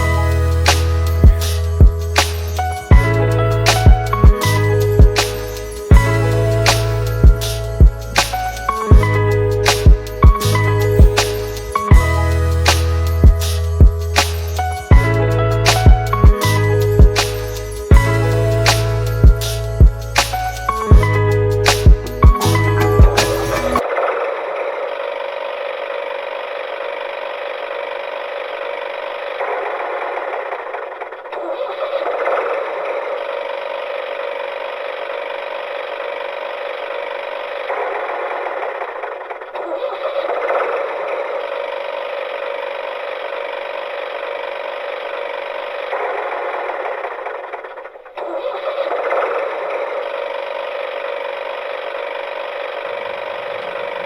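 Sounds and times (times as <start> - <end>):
engine running: 49.8 - 54.0.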